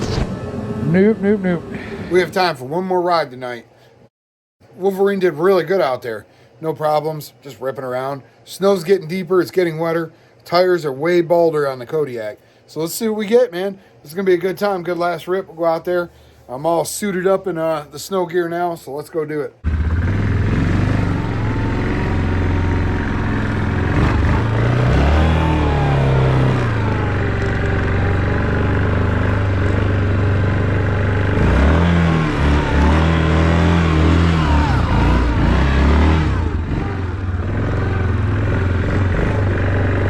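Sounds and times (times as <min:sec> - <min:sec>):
off-road vehicle engine revving: 0:19.6 - 0:40.0.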